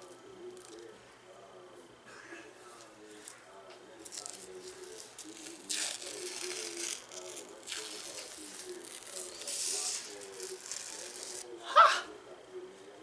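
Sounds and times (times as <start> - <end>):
peel-off face mask crinkling: 4.0 - 11.5.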